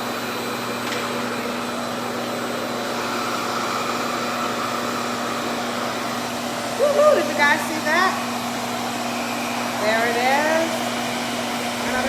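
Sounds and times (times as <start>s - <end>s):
hair dryer suction airflow: 0.0s - 12.0s
low motor hum: 10.8s - 12.0s.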